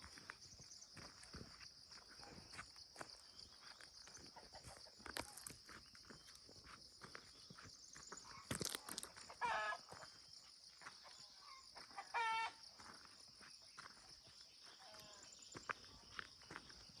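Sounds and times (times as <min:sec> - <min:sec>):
chicken calls: 0:04.0 - 0:05.5, 0:08.2 - 0:10.2, 0:10.8 - 0:13.0.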